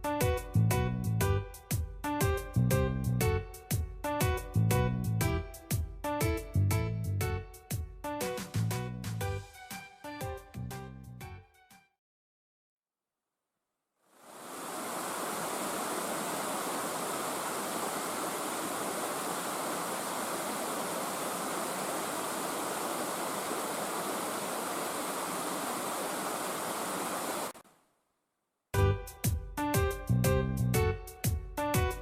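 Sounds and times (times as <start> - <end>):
water rushing down cascades: 14.2 - 27.6.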